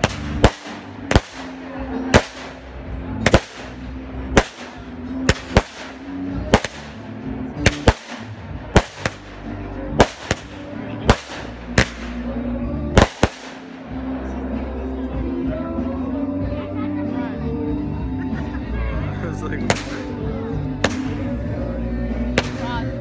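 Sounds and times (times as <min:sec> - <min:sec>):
fireworks bangs with echo: 0:00.0 - 0:13.8, 0:20.8 - 0:21.4.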